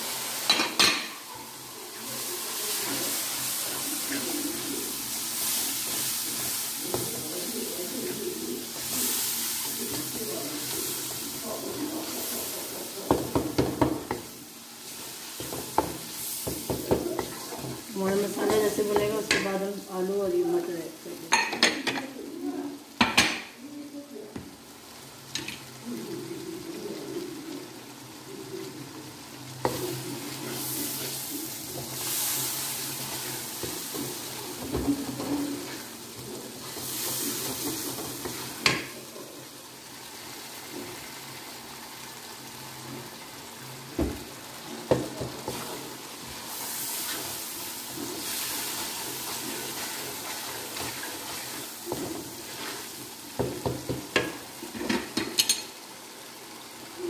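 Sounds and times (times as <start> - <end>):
masala sizzling in oil: 0.0 - 57.0
wooden spatula scraping pot: 15.4 - 19.5, 44.9 - 55.3.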